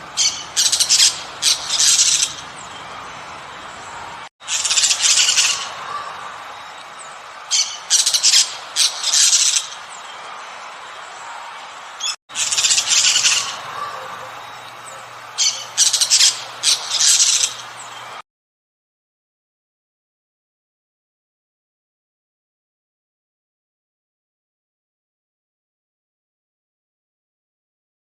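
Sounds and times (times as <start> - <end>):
steady background hiss: 0.0 - 18.2
bird squawking harshly: 0.2 - 2.4, 12.4 - 14.4, 15.4 - 17.6.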